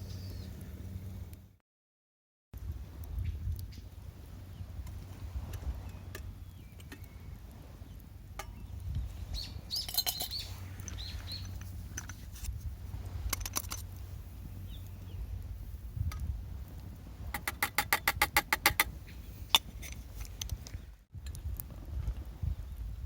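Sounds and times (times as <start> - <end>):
bird chirping: 5.8 - 11.6.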